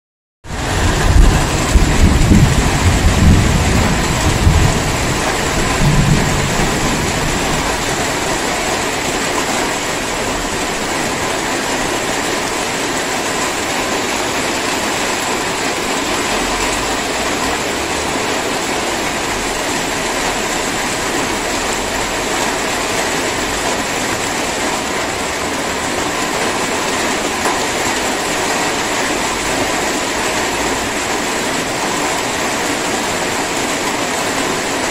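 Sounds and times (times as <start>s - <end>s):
deep low rumble: 0.5s - 9.0s
drizzling rain: 0.5s - 34.9s.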